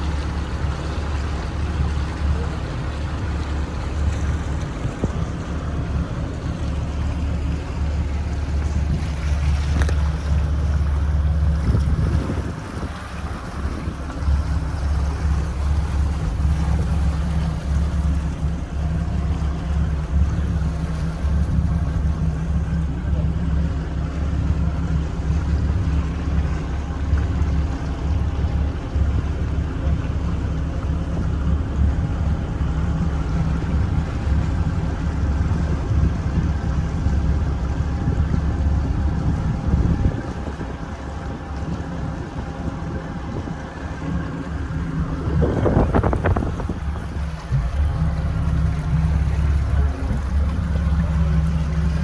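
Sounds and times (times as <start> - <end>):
boat engine droning: 0.0 - 52.0
rush of wind and water: 0.0 - 52.0.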